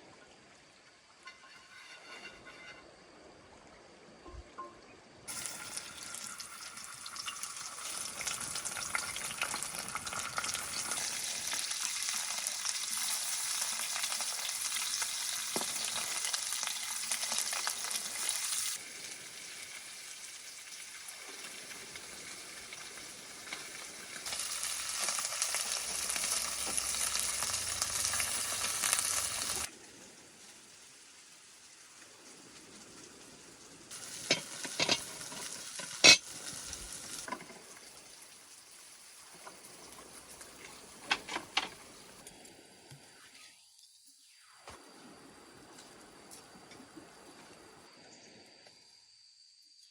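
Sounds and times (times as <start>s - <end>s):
food sizzling in a pan: 5.3s - 45.1s.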